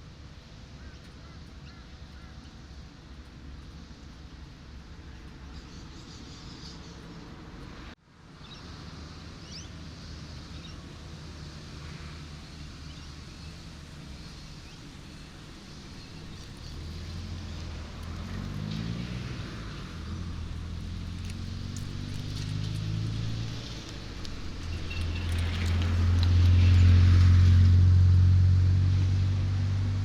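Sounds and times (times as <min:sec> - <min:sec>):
road traffic engine and tyre noise: 0:00.0 - 0:30.0
vehicle engine revving: 0:10.5 - 0:30.0.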